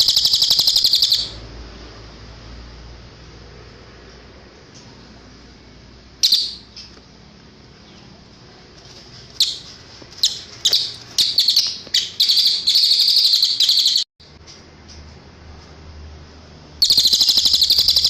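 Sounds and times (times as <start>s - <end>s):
bird chirping into rapid trill: 0.0s - 1.4s, 6.2s - 6.9s, 9.4s - 14.1s, 16.8s - 18.0s.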